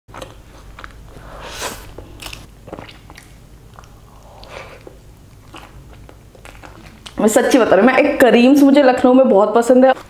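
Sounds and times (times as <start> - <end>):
person biting and chewing: 0.1 - 7.2.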